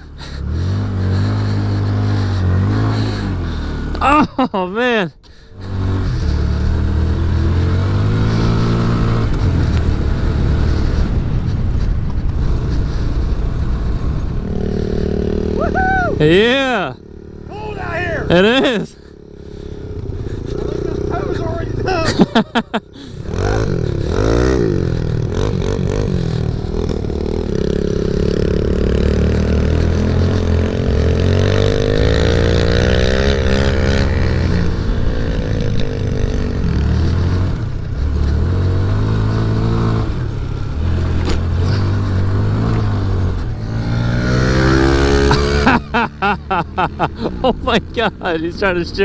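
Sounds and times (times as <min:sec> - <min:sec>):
mini bike engine revving: 0:00.0 - 0:04.2, 0:05.4 - 0:11.2, 0:14.4 - 0:48.8.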